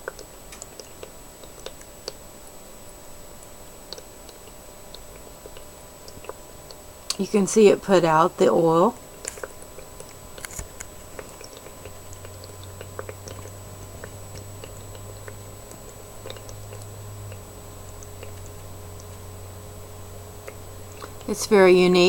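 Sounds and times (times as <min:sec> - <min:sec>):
diffuser water bubbling: 0:00.0 - 0:22.0
low steady hum: 0:00.0 - 0:22.0.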